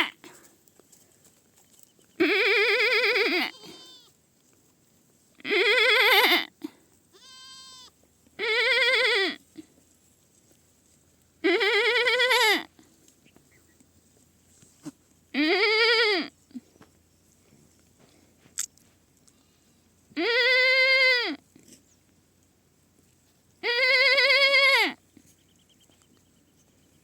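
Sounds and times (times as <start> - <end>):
young goat bleating: 0.0 - 0.2, 2.2 - 4.2, 5.4 - 9.4, 11.4 - 12.8, 14.8 - 16.4, 20.2 - 21.4, 23.6 - 25.0
faint high-pitched bleat: 0.0 - 0.4, 2.2 - 4.2, 5.4 - 9.7, 11.4 - 12.8, 14.8 - 16.6, 20.2 - 21.4, 23.6 - 25.0.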